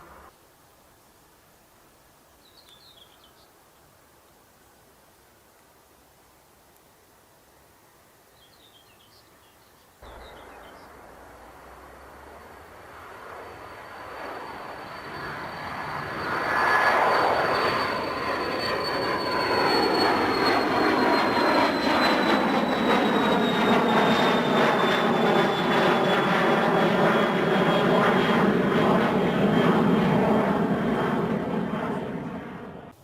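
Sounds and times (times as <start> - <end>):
high jet engine whine: 0.0 - 0.3, 10.0 - 33.0
jet airliner engine roar: 10.0 - 33.0.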